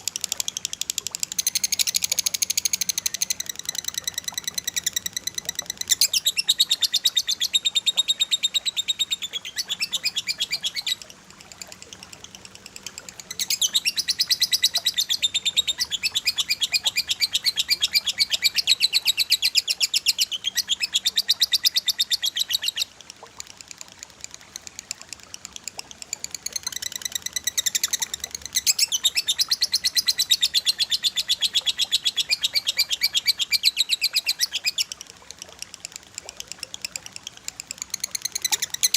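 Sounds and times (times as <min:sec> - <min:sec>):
songbird rapid trill: 0:00.0 - 0:38.9.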